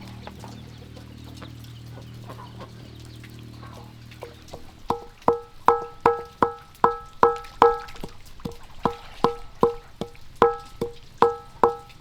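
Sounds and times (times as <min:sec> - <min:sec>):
pestle pounding in a mortar: 0:04.5 - 0:12.0.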